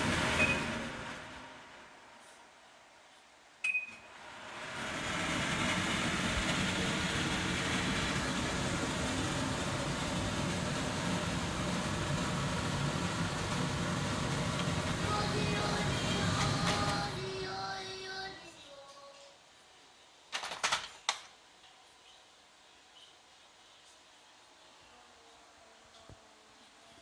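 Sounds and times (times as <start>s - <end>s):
extractor hood fan running: 0.0s - 18.8s
brief beep: 0.4s - 0.8s, 3.6s - 4.1s.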